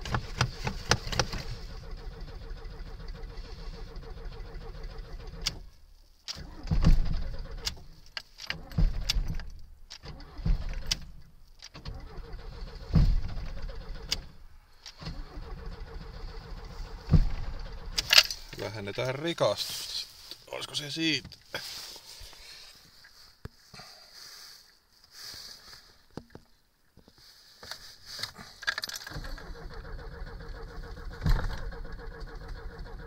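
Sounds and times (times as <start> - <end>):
starter motor cranking: 0.0 - 5.7, 11.7 - 19.0, 28.8 - 33.0.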